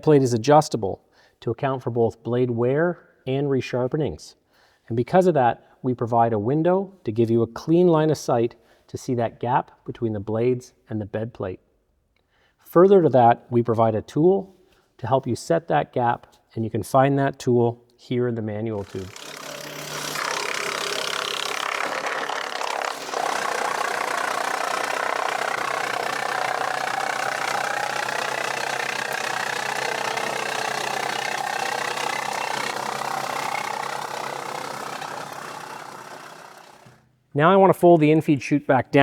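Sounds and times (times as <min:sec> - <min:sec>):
engine running steadily: 0:23.0 - 0:36.9.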